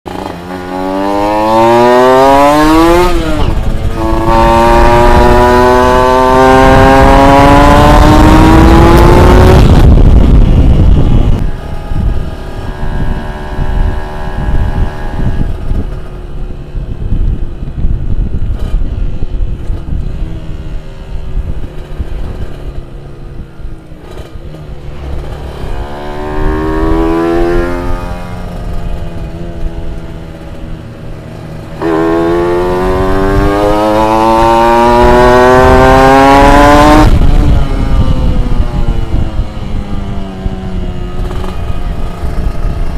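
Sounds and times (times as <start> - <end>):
two-stroke engine revving: 0.1 - 15.9, 24.0 - 30.7, 31.3 - 42.9.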